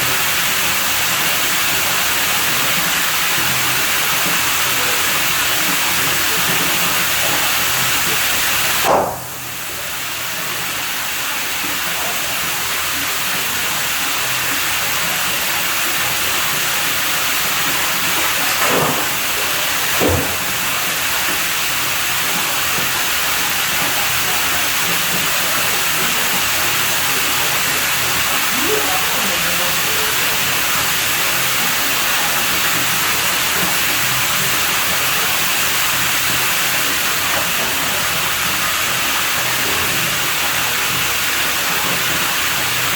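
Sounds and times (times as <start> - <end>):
running water rushing: 0.0 - 42.9
knock: 8.8 - 9.4, 18.6 - 19.1, 20.0 - 20.5.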